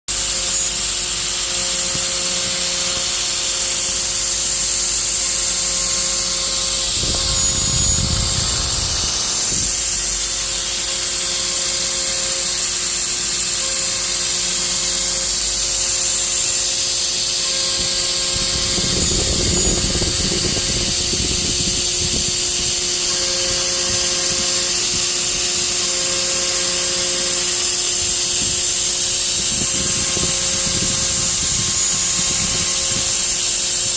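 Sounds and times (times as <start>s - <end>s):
router bit cutting wood: 0.1s - 33.9s
router spindle whine: 0.1s - 33.9s.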